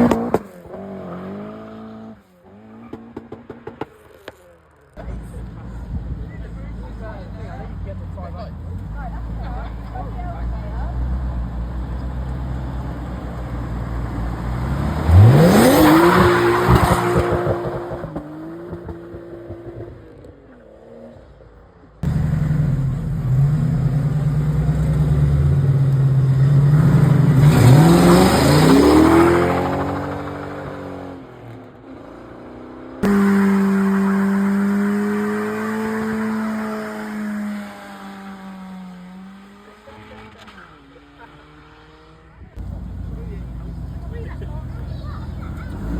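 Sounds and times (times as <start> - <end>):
cars accelerating hard: 0.0 - 45.9.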